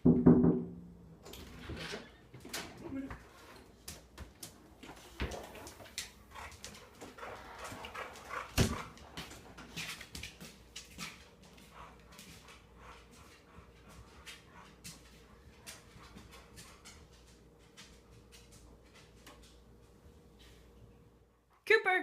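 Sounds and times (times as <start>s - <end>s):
loud knock: 0.0s - 0.9s.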